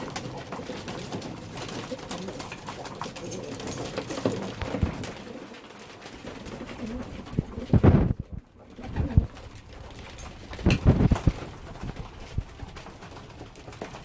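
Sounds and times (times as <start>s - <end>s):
clicks and shuffles: 0.0s - 14.0s
pigeons cooing: 0.0s - 14.0s
low wing flurry: 6.6s - 9.8s, 10.4s - 12.8s.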